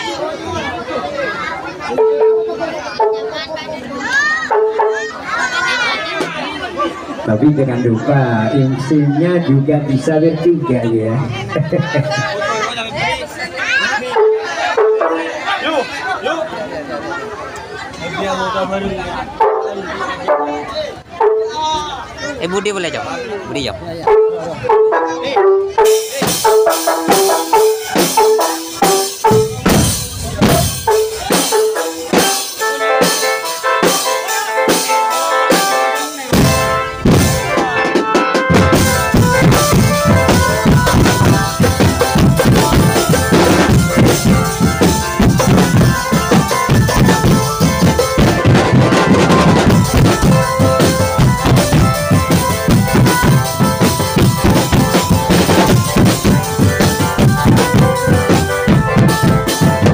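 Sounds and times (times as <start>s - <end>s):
drum band music: 1.9s - 3.5s, 4.1s - 6.5s, 8.2s - 15.9s, 18.8s - 23.0s, 23.6s - 59.9s
deep bass drums: 38.5s - 59.9s.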